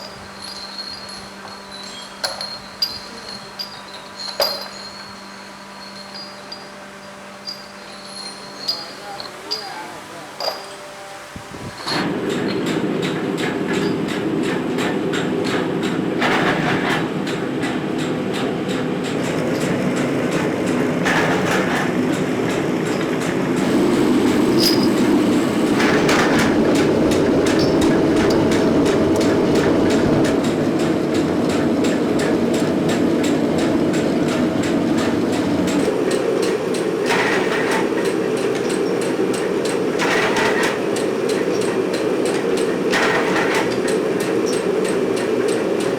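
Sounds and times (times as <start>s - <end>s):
metalworking machinery rattling: 11.7s - 45.9s.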